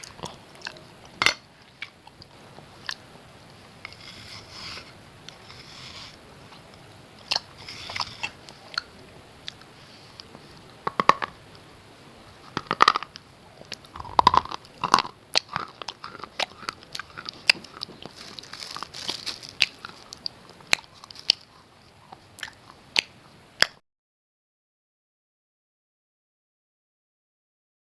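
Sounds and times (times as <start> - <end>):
slate pencils crunching: 3.8 - 8.9, 12.4 - 21.6.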